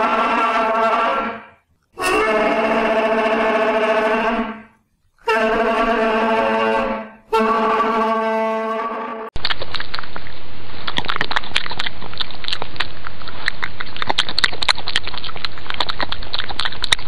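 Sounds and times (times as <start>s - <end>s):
brass-like instrument held notes: 0.0s - 9.3s.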